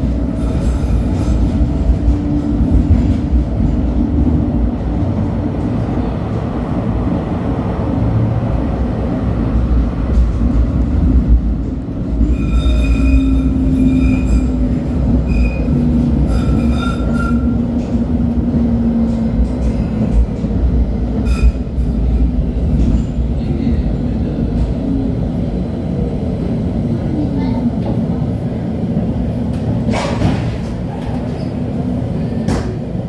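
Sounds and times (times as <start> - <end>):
light-rail car rumbling: 0.0 - 33.0
high wheel squeal: 12.2 - 17.6.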